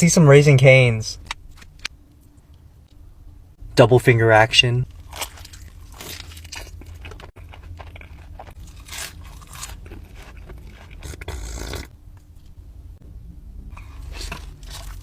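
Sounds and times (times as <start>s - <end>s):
crunching and chewing fried food: 4.9s - 12.6s, 13.7s - 15.0s.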